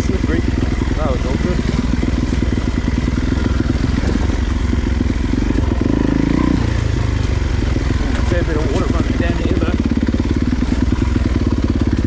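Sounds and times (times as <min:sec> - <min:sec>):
dirt bike engine: 0:00.0 - 0:12.0.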